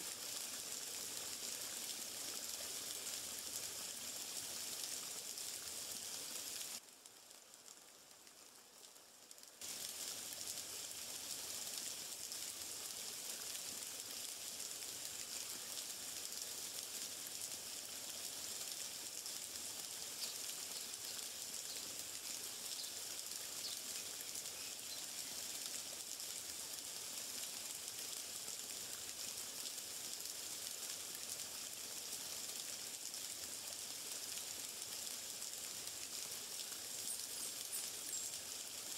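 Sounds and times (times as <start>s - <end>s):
water hissing: 9.6s - 12.4s.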